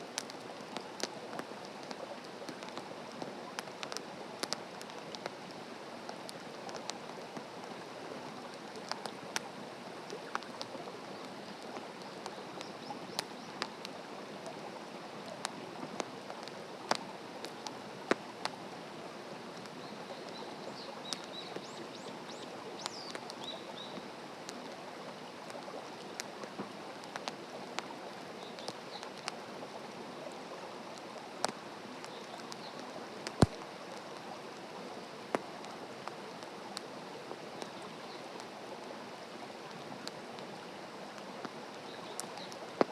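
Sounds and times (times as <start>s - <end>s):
campfire crackling and popping: 0.0s - 18.8s, 19.4s - 42.9s
birds chirping faintly: 7.7s - 17.8s, 19.6s - 38.6s, 39.4s - 42.9s.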